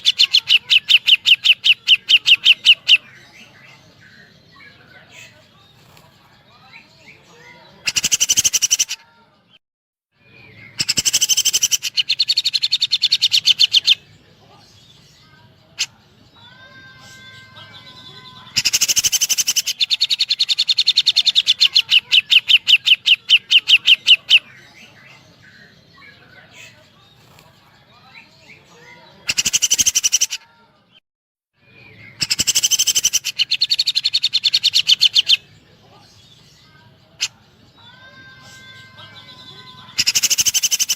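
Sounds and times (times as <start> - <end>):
bird singing rapid high notes: 10.6 - 14.0.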